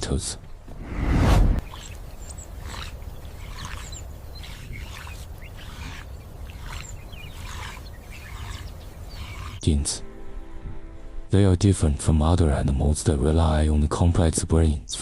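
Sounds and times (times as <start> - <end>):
steady low rumble: 0.6 - 3.4
birds chirping: 1.6 - 9.8.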